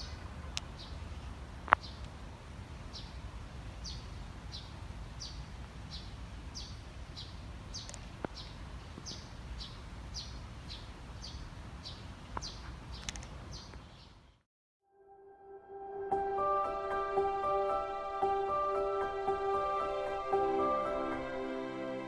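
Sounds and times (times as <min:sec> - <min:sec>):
bird chirping: 0:00.0 - 0:02.1, 0:02.9 - 0:03.2, 0:03.8 - 0:14.3.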